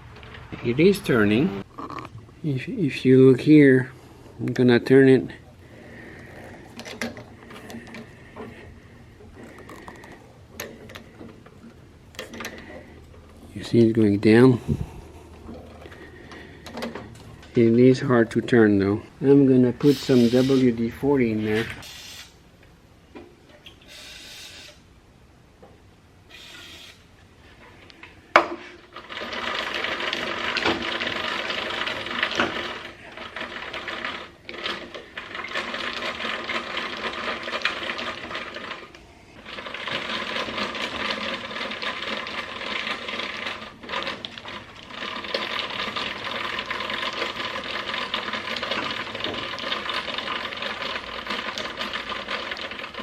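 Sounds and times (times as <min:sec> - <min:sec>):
crank turning with mechanical clatter: 0:05.8 - 0:18.8, 0:28.0 - 0:53.0
hissing spray can: 0:21.8 - 0:22.4.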